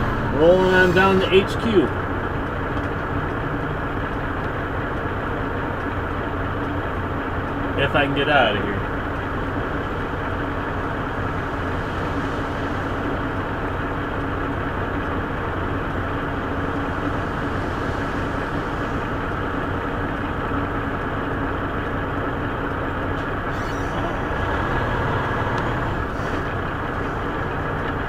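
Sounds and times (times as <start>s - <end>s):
diesel truck engine running: 0.0s - 28.0s.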